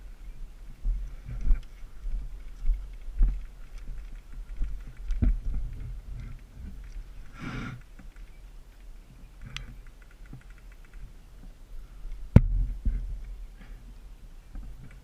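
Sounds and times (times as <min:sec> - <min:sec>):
steady low rumble: 0:00.0 - 0:10.0, 0:11.0 - 0:15.0
rustling of gear: 0:00.2 - 0:15.0
low thumps: 0:12.2 - 0:13.4.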